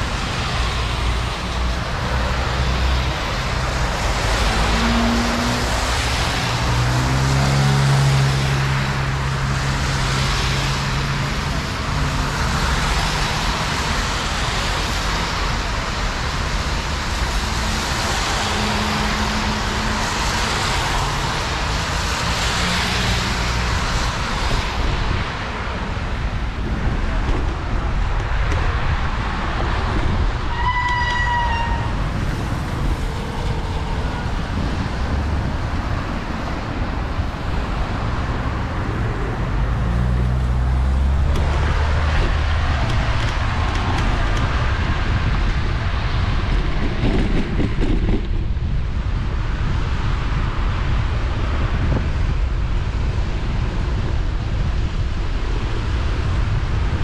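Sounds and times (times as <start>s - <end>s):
rain: 0.0s - 47.8s, 48.8s - 57.0s.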